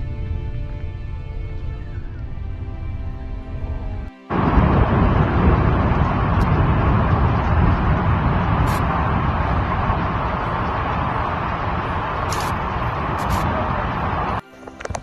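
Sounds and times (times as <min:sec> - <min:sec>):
wind buffeting microphone: 0:00.0 - 0:15.0
heavy rain rushing: 0:04.3 - 0:14.4.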